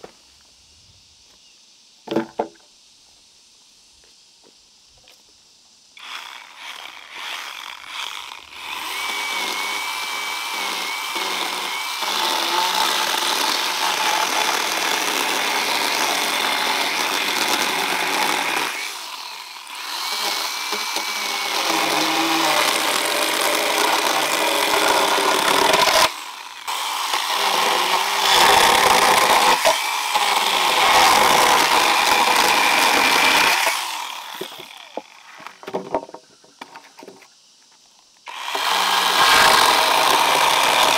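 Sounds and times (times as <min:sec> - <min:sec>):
chainsaw cutting wood: 0:06.0 - 0:36.1, 0:38.3 - 0:40.9.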